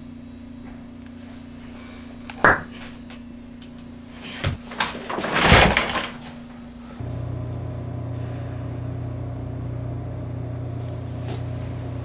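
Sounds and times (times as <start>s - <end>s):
steady low hum: 6.4s - 12.0s.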